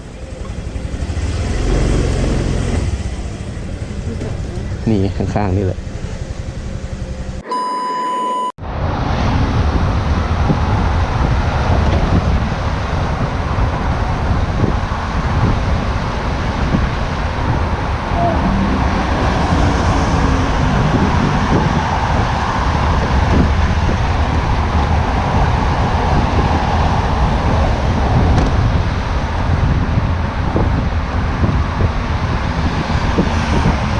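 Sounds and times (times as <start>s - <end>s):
wind and road rumble: 0.0s - 7.5s, 8.2s - 33.9s
steady beep tone: 7.4s - 8.6s.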